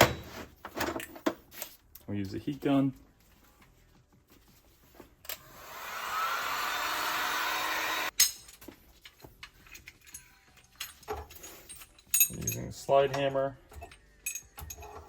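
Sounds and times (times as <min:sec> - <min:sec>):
heat gun blowing: 0:05.4 - 0:08.1.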